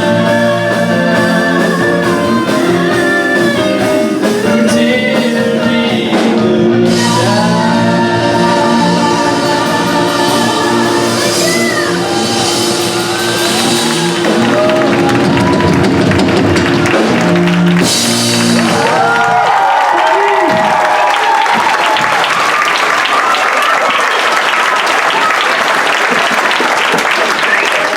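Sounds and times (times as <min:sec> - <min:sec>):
live band with singer: 0:00.0 - 0:19.6
audience shouting and cheering: 0:00.0 - 0:27.9.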